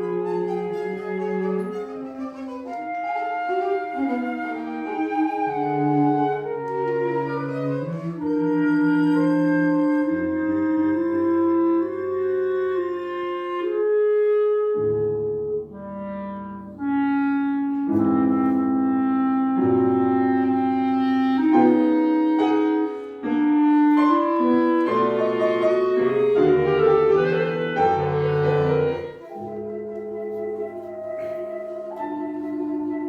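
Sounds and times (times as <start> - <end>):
chamber ensemble playing: 0.0 - 12.2, 17.8 - 33.0
clarinet: 0.0 - 33.0
piano: 0.0 - 33.0.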